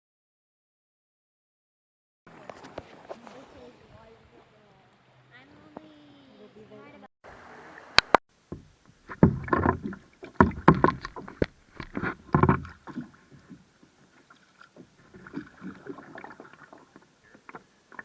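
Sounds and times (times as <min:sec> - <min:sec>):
water noises: 0:02.3 - 0:18.0
knocks on paddle boat: 0:08.5 - 0:13.6.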